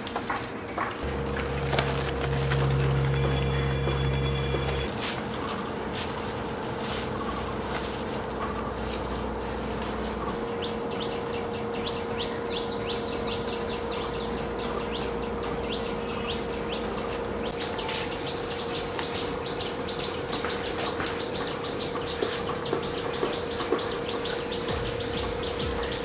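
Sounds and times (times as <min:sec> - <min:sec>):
bird chirping: 0:00.5 - 0:04.9, 0:10.1 - 0:26.0
steady hum: 0:01.0 - 0:26.0.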